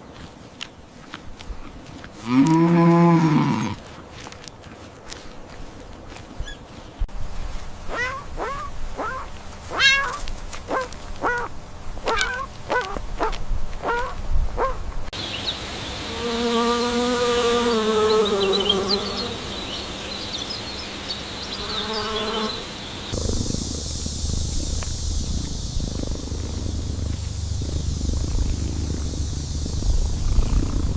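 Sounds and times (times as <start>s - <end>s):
farm animal calls: 2.2s - 3.9s, 7.9s - 14.8s.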